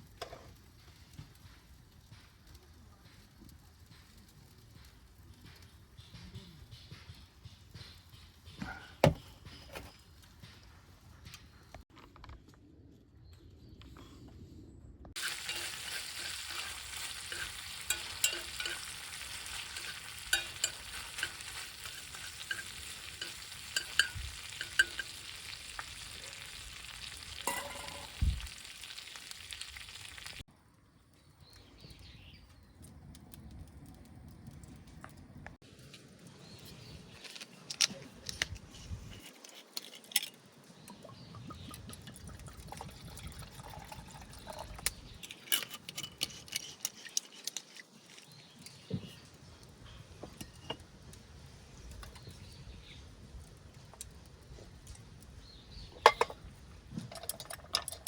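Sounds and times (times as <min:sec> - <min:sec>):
fire crackling: 0:15.1 - 0:41.5, 0:42.5 - 0:57.8
food sizzling on a grill: 0:15.2 - 0:30.5.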